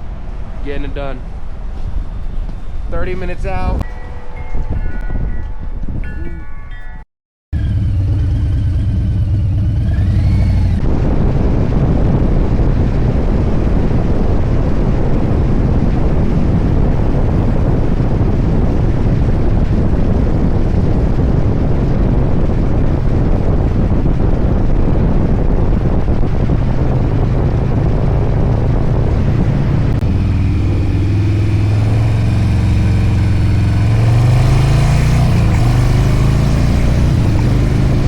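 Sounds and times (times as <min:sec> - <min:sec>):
wind noise on microphone: 0:00.0 - 0:07.0, 0:07.6 - 0:38.0
motorcycle engine rumble: 0:07.6 - 0:38.0.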